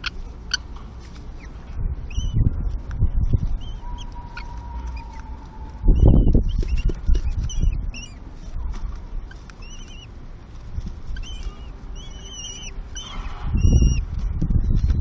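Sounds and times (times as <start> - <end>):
kestrel chirps: 0.0 - 0.7, 1.3 - 2.6, 3.4 - 10.2, 11.1 - 14.2.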